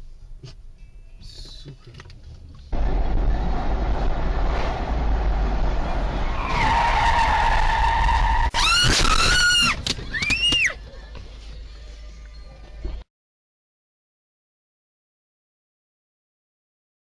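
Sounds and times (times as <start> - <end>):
road and engine noise: 0.0 - 8.6, 9.7 - 13.1
car tyres squealing: 5.7 - 10.8.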